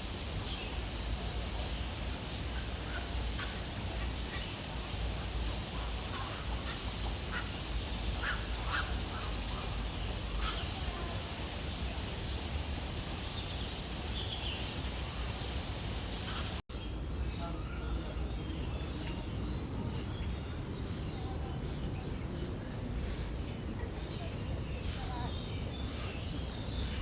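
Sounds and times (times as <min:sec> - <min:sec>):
background hiss: 0:00.0 - 0:16.6.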